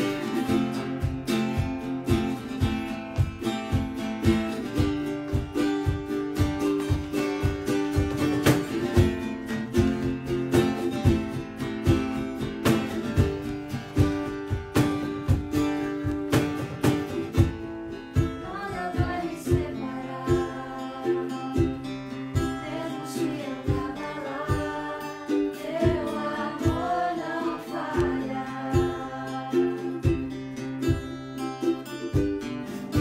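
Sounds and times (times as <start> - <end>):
acoustic guitar strumming: 0.0 - 33.0
person singing: 18.2 - 30.9.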